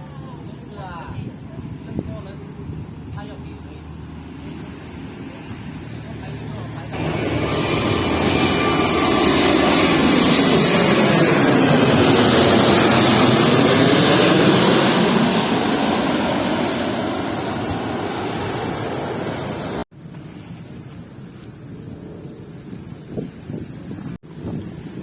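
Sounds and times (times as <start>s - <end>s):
jet airliner passing overhead: 0.0s - 19.9s, 21.8s - 23.2s.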